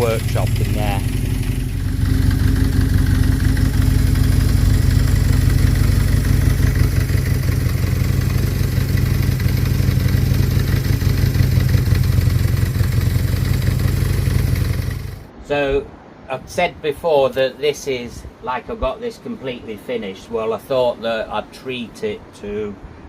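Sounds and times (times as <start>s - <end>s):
motorcycle engine idling: 0.0s - 15.3s.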